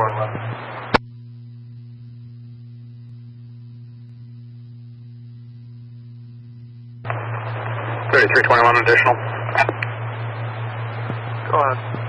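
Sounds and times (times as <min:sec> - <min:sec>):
radio static burst: 0:00.0 - 0:01.0, 0:07.1 - 0:12.0
electrical hum: 0:00.0 - 0:12.0.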